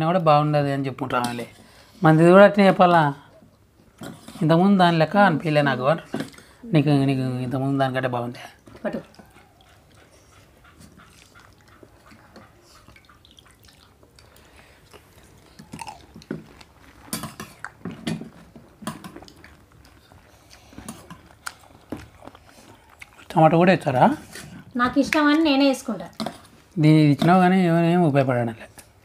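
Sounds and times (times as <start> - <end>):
crunching crisp food shells: 14.2 - 23.6.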